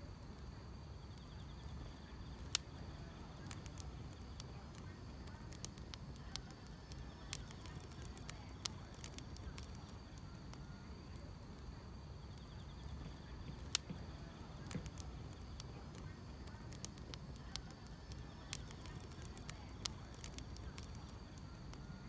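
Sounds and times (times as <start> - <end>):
insects chirping: 0.0 - 22.0
wood fire crackling: 0.0 - 22.0.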